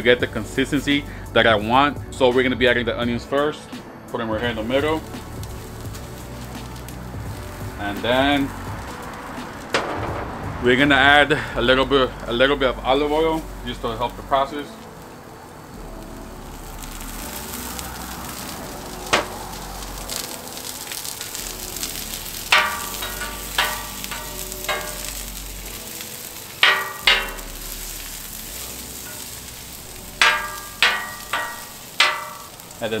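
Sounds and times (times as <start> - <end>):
onions sizzling on griddle: 4.4 - 10.6, 11.2 - 33.0
metal spatula scraping griddle: 21.9 - 32.7.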